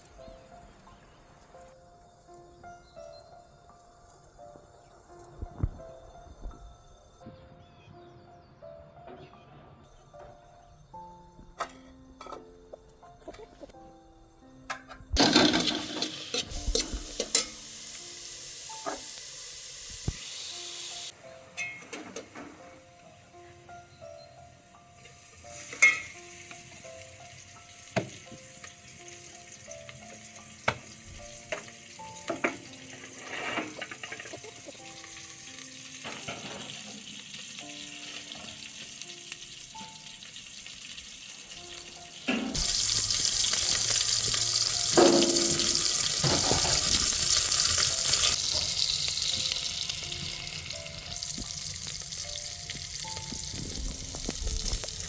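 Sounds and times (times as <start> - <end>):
faint background music: 0.0 - 55.0
food sizzling in hot oil: 15.2 - 55.0.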